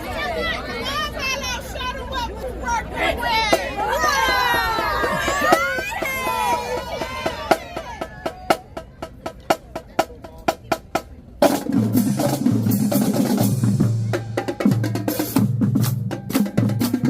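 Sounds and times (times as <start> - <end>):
marching drumline playing: 3.4 - 17.0.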